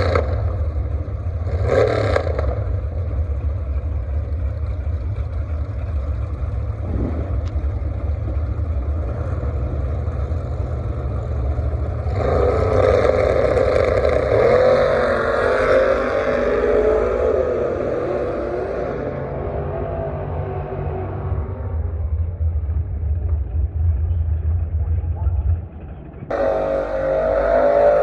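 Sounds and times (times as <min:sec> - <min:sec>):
drag racing car engine: 0:00.0 - 0:28.0
steady low rumble: 0:00.2 - 0:01.6, 0:02.3 - 0:12.2, 0:18.2 - 0:28.0.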